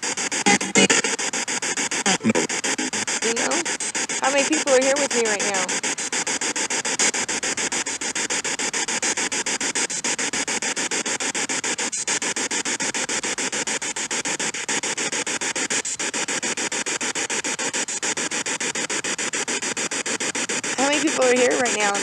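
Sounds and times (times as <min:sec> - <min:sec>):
pulsing radio static: 0:00.0 - 0:22.0.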